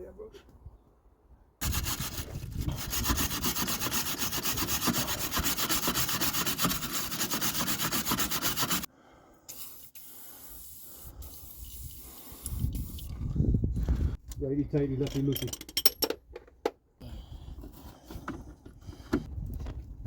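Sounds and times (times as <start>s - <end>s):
wire brush scrubbing metal: 1.6s - 8.9s.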